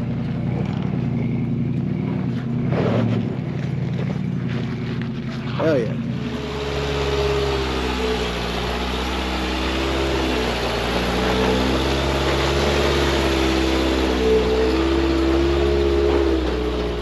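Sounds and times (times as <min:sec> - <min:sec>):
truck engine running at low revs: 0:00.0 - 0:17.0.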